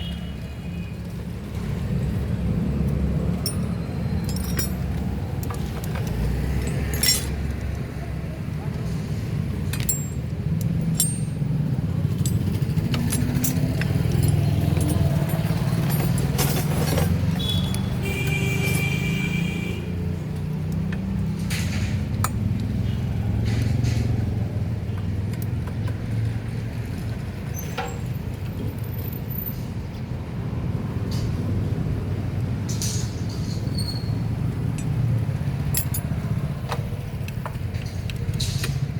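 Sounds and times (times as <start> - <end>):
engine rumbling: 0.0 - 38.9
metallic tool clicks: 9.7 - 11.6.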